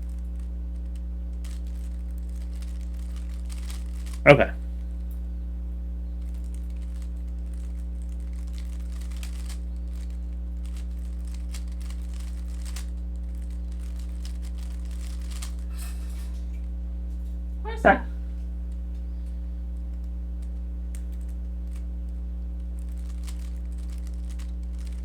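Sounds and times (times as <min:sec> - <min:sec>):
low electrical hum: 0:00.0 - 0:25.0
puzzle cube clicking and rattling: 0:00.8 - 0:04.3, 0:06.3 - 0:15.6, 0:22.7 - 0:25.0.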